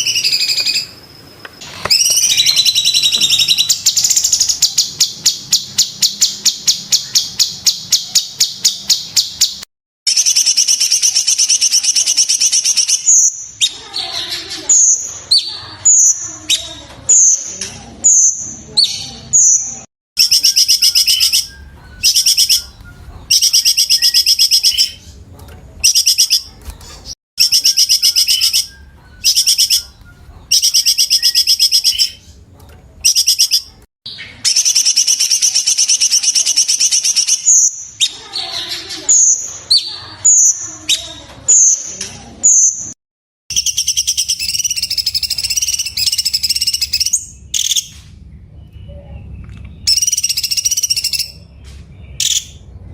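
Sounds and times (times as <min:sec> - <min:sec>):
high whistled bird notes: 0:00.0 - 0:01.0, 0:01.6 - 0:13.8, 0:20.2 - 0:25.0, 0:27.4 - 0:32.2, 0:43.5 - 0:47.9, 0:49.8 - 0:51.4
songbird rattling song: 0:00.0 - 0:48.9, 0:49.6 - 0:52.7.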